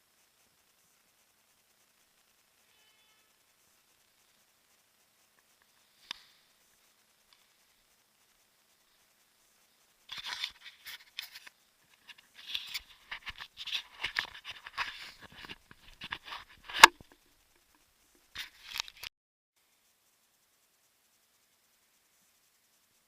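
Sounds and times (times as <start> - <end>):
rustling and crunching: 10.1 - 17.7, 18.4 - 19.1
sharp click: 16.1 - 17.2.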